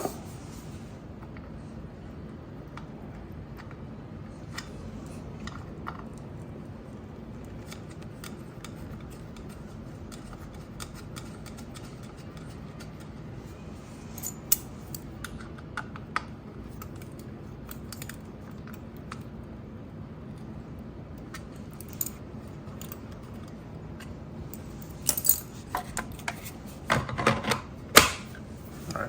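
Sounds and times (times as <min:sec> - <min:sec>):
steady low hum: 0:00.0 - 0:29.0
hands clicking and tapping parts: 0:07.4 - 0:13.1, 0:21.2 - 0:28.4.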